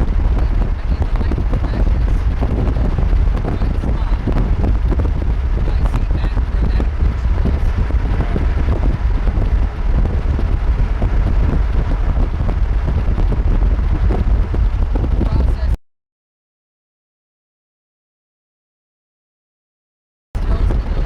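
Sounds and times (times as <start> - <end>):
wind buffeting microphone: 0.0 - 15.8, 20.4 - 21.0.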